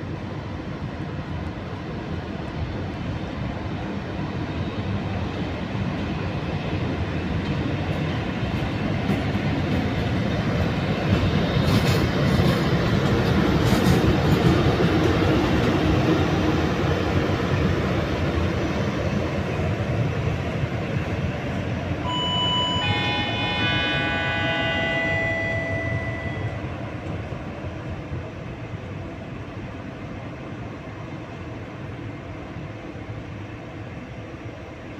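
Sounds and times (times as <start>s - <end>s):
train rumbling past: 0.0s - 34.9s.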